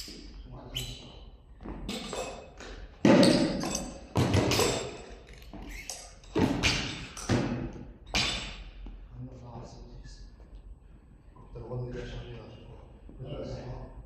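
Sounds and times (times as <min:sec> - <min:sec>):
weights thudding on gym floor: 0:03.0 - 0:05.0, 0:06.3 - 0:08.7.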